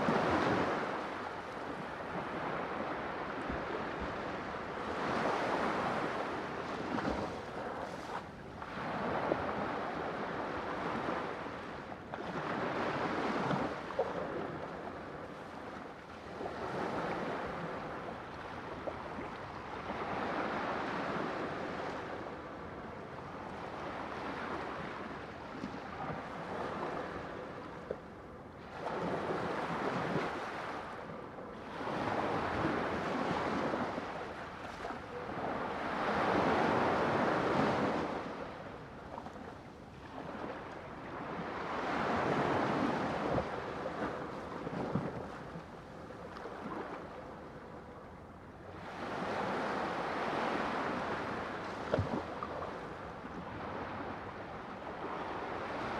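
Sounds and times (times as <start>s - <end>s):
sea waves breaking on shore: 28.7s - 47.7s.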